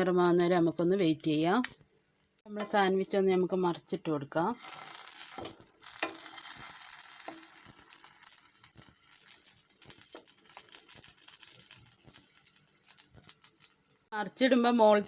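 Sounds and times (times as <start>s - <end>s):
butter sizzling in a pan: 0.0s - 15.0s
small crackling pops: 0.2s - 2.5s, 5.0s - 14.2s.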